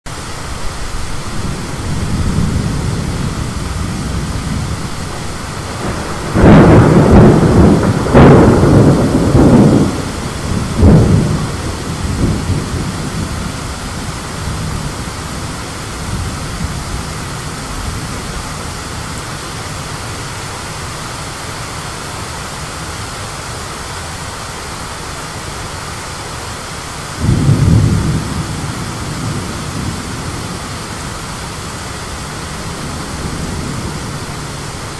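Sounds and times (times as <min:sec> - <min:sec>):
wind and rain hiss: 0:00.1 - 0:34.9
thunder rolling: 0:00.2 - 0:20.3, 0:27.2 - 0:34.9
thunderclap: 0:00.6 - 0:18.5, 0:27.2 - 0:34.9.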